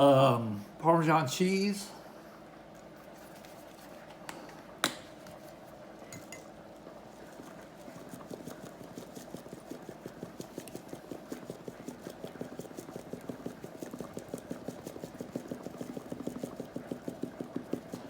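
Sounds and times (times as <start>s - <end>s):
cheese shaker being shaken: 5.3s - 18.0s.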